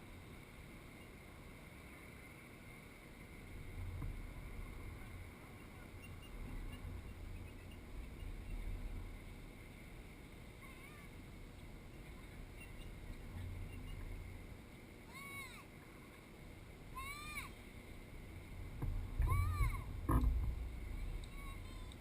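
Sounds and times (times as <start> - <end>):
faint steady hiss: 0.0 - 22.0
wind buffeting microphone: 1.0 - 15.1, 16.6 - 22.0
faint high chirp: 5.6 - 8.8, 11.9 - 14.2.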